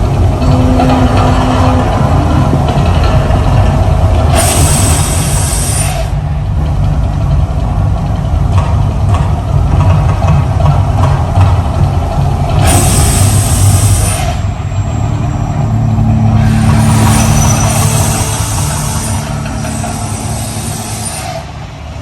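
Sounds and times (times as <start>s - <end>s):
deep eruption rumble: 0.0s - 22.0s
hissing burst: 4.3s - 6.2s, 12.6s - 14.8s, 16.3s - 21.6s.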